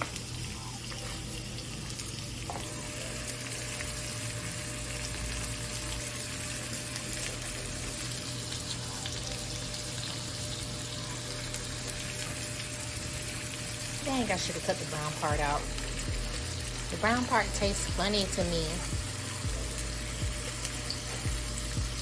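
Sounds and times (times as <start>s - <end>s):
fish sizzling in hot oil: 0.0s - 22.0s.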